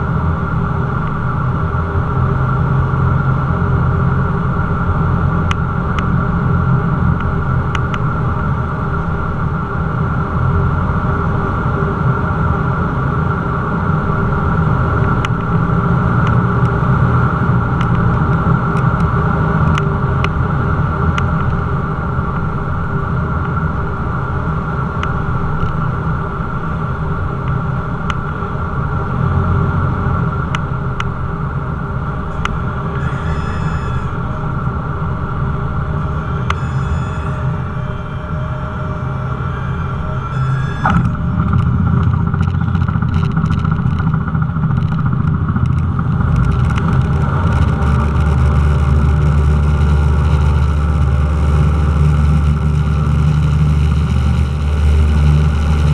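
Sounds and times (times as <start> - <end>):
propeller plane engine droning: 0.0 - 55.9
brief high tone: 32.9 - 34.5, 36.0 - 41.2.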